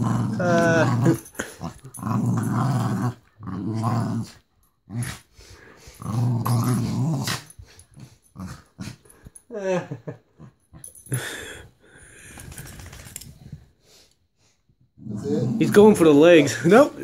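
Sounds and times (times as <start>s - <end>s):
dog growling: 0.0s - 5.3s, 6.0s - 9.0s, 15.0s - 16.6s.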